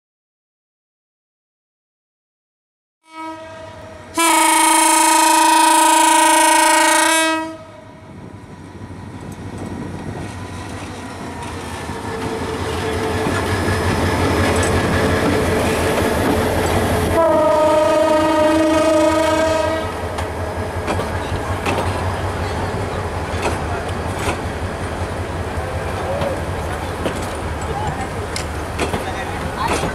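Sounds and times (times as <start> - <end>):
locomotive horn blast: 3.0 - 8.0, 17.0 - 20.1
train wheels on rails: 4.1 - 29.9.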